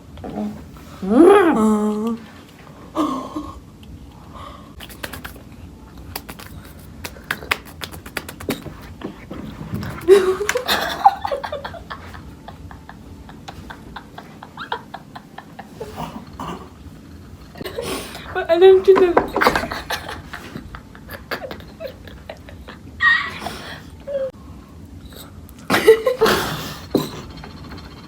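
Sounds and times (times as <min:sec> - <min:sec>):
person laughing or exclaiming: 0:20.1 - 0:24.3.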